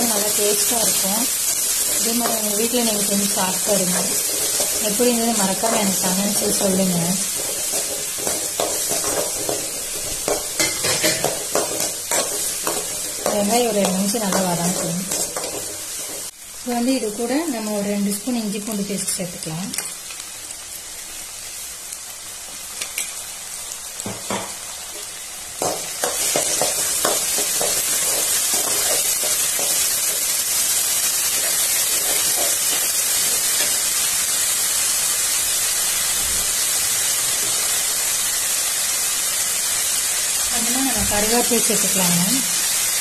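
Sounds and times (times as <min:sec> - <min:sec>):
onions frying in oil: 0:00.0 - 0:43.0
steel spoon scraping pan: 0:04.1 - 0:16.3.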